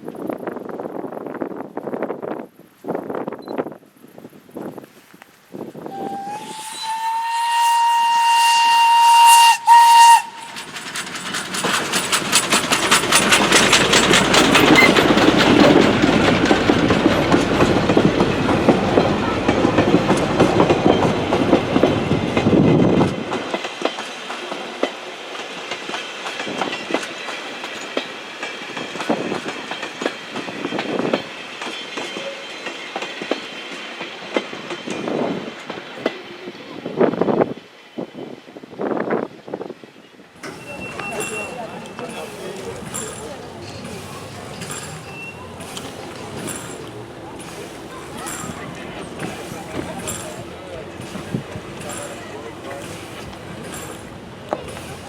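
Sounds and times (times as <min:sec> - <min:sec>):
train passing with rumble: 0:05.5 - 0:55.0
steam train whistle: 0:05.9 - 0:10.7
train wheel clicks: 0:09.2 - 0:36.2, 0:40.4 - 0:55.0.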